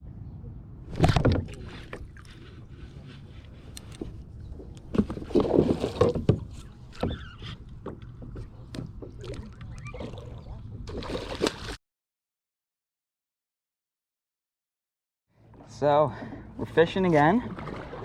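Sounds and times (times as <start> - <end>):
water sloshing against hull: 0.9 - 11.8, 15.4 - 18.0
paddle strokes: 1.0 - 11.8, 15.4 - 18.0.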